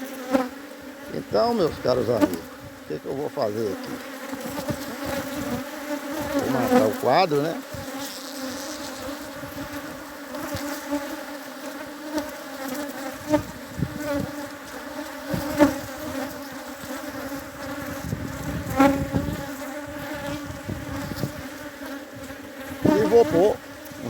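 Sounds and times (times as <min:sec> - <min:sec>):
honeybees buzzing: 0:00.0 - 0:24.0.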